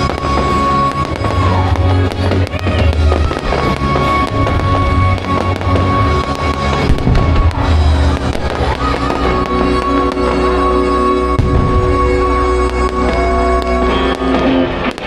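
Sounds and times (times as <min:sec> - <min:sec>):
fireworks bursting and crackling: 0:00.0 - 0:15.0
loud music with bass line: 0:00.0 - 0:15.0.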